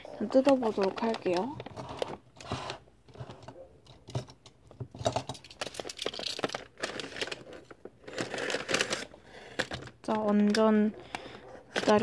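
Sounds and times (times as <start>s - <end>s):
plastic mailer bag tearing: 0.2s - 2.8s, 5.6s - 10.5s, 11.7s - 12.0s.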